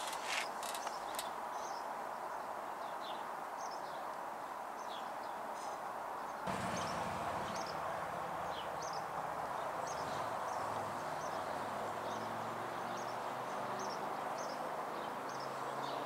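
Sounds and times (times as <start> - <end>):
small bird chirping: 0.0 - 1.3
outdoor background noise: 0.0 - 16.0.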